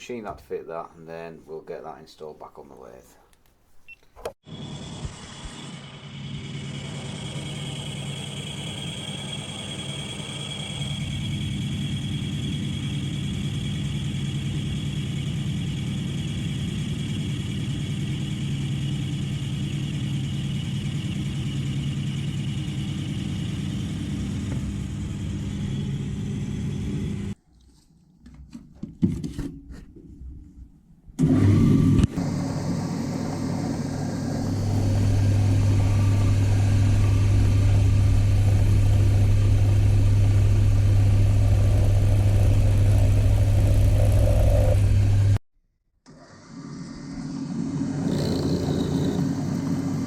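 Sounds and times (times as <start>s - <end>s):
metal lathe humming with whine: 4.5s - 27.4s, 32.2s - 45.4s.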